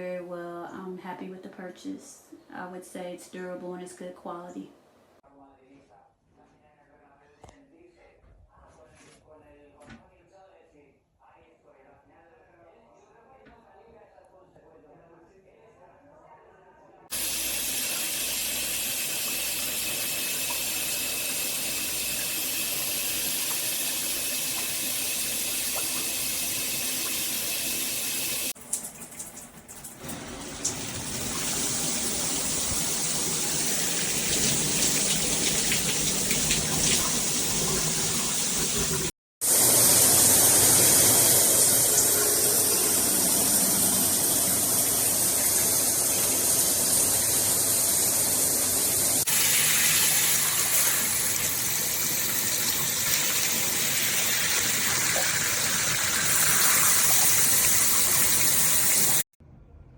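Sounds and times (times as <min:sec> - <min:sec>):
shower head spraying water: 0:17.1 - 0:59.3.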